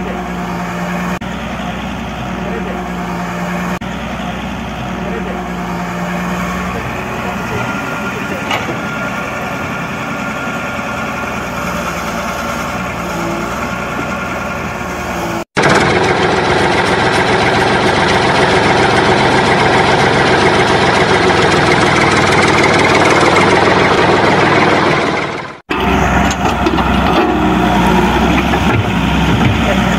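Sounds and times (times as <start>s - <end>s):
truck engine running: 0.0s - 29.9s.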